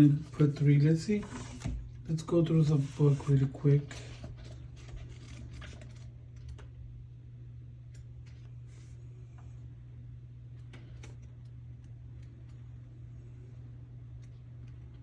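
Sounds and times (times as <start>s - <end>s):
steady low hum: 0.0s - 15.0s
pages flipping: 2.8s - 6.7s.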